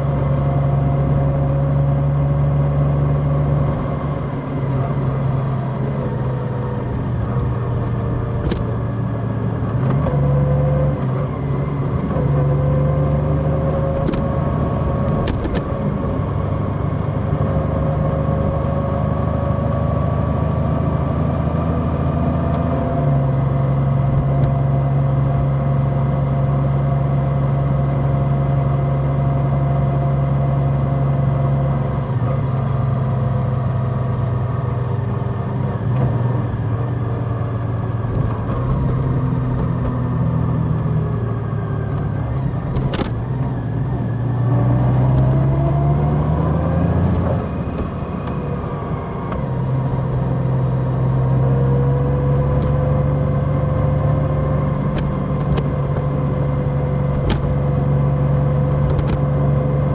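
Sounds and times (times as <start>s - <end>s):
motorcycle engine running: 0.0s - 20.4s, 31.4s - 59.9s.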